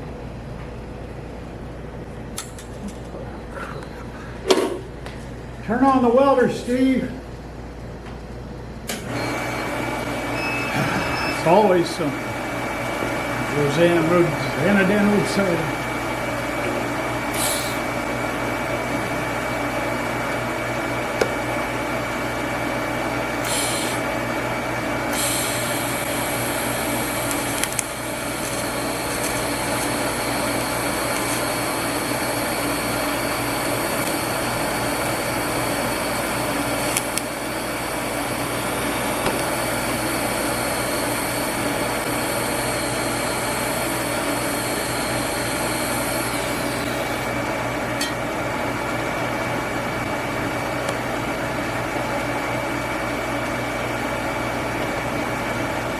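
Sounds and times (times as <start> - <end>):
welder machine hum: 8.8 - 55.9
welding arc hiss: 17.3 - 18.7, 23.4 - 24.2, 25.0 - 47.3.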